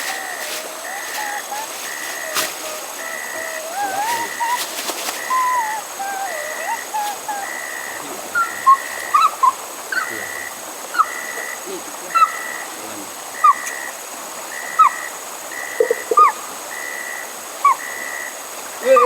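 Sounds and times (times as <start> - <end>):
pulsing animal call tone: 0.0 - 10.4
flowing river water: 0.0 - 19.0
insects hissing: 0.0 - 19.0.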